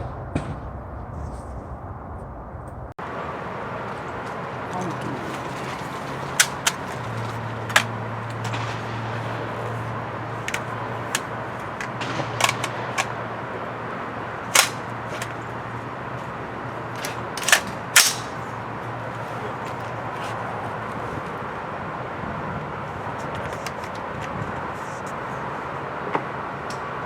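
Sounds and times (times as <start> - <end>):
gunshots: 10.5 - 13.2, 14.5 - 15.3, 17.0 - 18.5.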